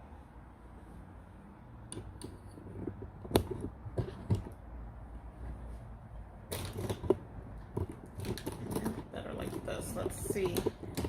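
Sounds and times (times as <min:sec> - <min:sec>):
sharp knocks and clicks: 0:01.9 - 0:04.6, 0:06.5 - 0:11.0.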